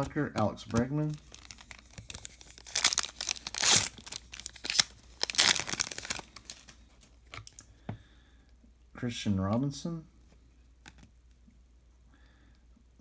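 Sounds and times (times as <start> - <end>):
foil wrapper tearing and crinkling: 0.8 - 6.8.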